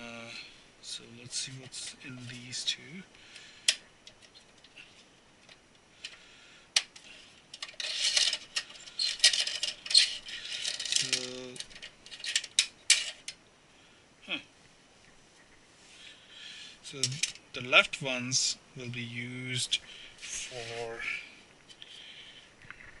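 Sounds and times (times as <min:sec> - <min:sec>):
computer hardware parts rattling: 0:06.8 - 0:13.4, 0:16.9 - 0:17.4.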